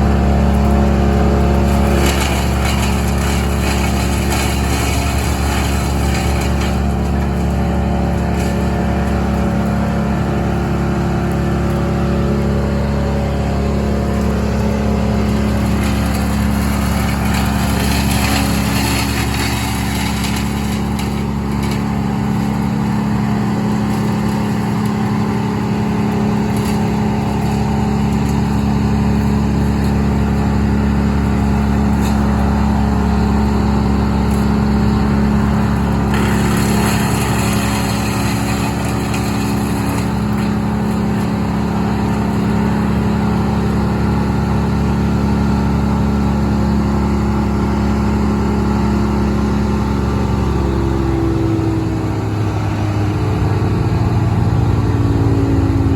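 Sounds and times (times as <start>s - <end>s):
large engine running: 0.0s - 55.9s.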